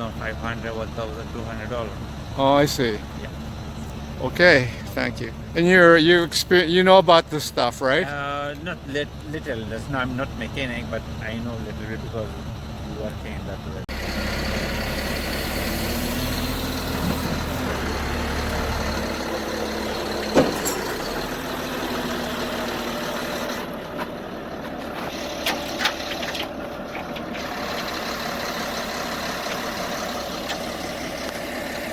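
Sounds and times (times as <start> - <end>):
vehicle engine running: 0.0 - 31.9.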